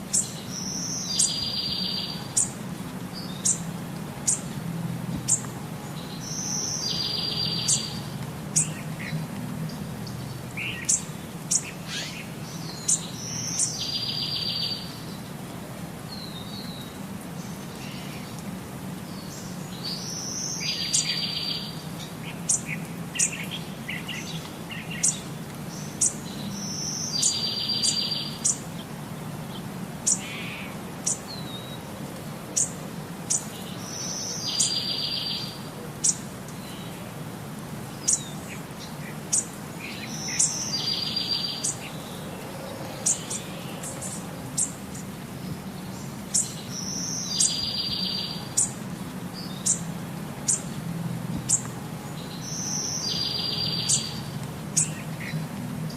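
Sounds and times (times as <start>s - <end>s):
bird singing with buzzy trill: 0.1s - 2.6s, 6.0s - 9.2s, 10.1s - 15.2s, 19.2s - 28.6s, 33.3s - 36.9s, 38.0s - 42.2s, 42.9s - 48.8s, 52.2s - 55.4s.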